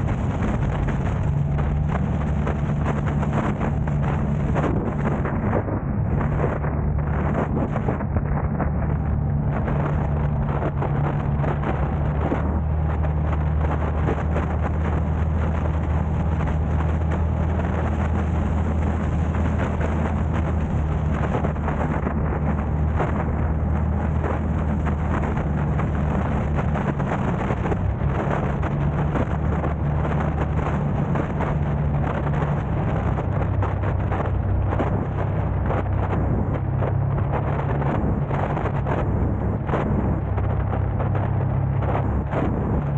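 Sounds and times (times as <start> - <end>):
car engine and road drone: 0.0 - 42.9
tyre and wind noise: 0.0 - 42.9.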